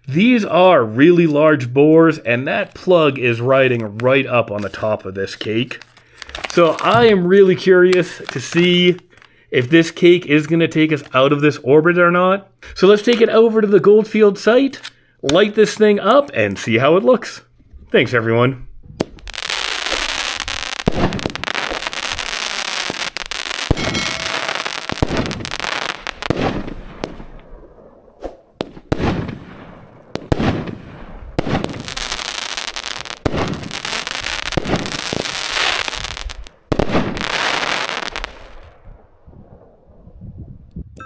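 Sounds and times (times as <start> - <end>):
firework crackle: 5.7 - 7.1, 7.9 - 9.3, 18.9 - 38.9
firework aerial bursts: 18.8 - 38.8
firework launch thumps: 18.9 - 22.2, 22.9 - 27.5, 28.2 - 31.9, 33.2 - 33.8.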